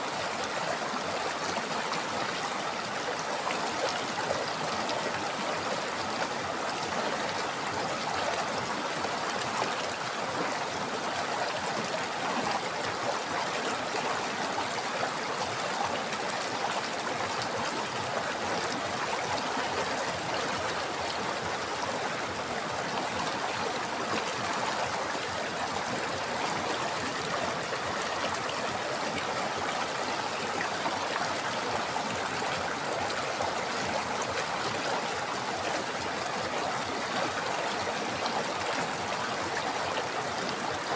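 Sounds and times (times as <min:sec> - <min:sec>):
river flowing over rocks: 0:00.0 - 0:40.9.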